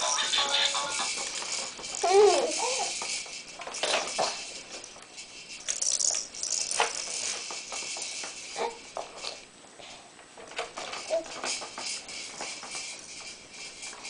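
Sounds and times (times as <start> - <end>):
plastic rattle toys clattering: 0.0 - 8.3.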